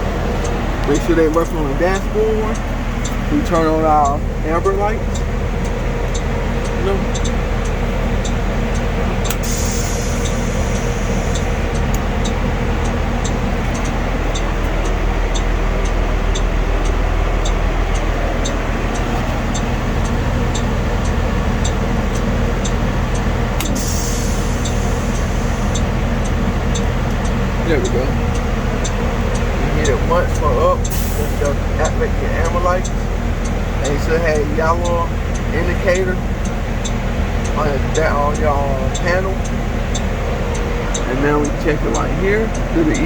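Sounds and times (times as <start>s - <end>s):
bus engine idling: 0.0s - 43.0s
warning light flasher clicking: 0.3s - 43.0s
air hiss bursts: 9.4s - 11.9s, 23.6s - 25.9s.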